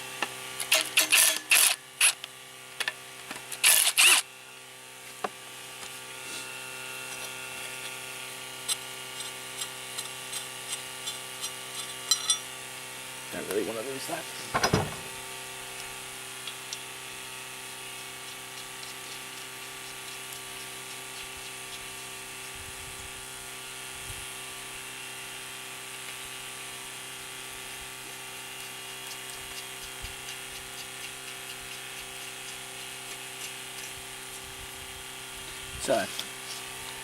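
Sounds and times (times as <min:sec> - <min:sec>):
steady electrical hum: 0:00.0 - 0:23.8.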